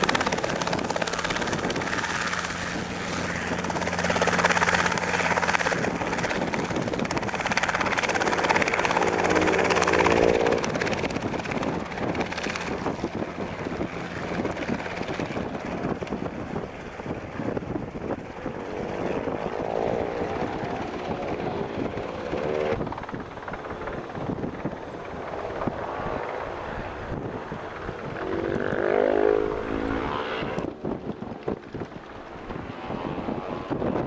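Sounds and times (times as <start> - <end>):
helicopter engine drone: 0.0 - 34.0
helicopter rotor beating: 0.0 - 34.0.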